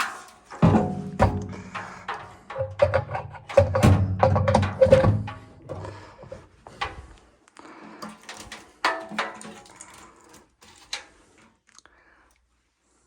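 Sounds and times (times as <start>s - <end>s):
tools knocking and clicking: 0.5s - 7.0s.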